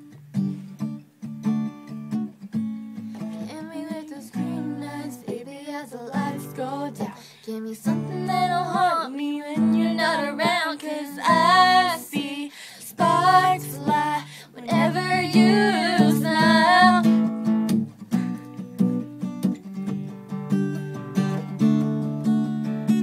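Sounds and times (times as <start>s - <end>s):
strummed acoustic guitar: 0.0s - 23.0s
women singing pop song: 3.4s - 17.2s.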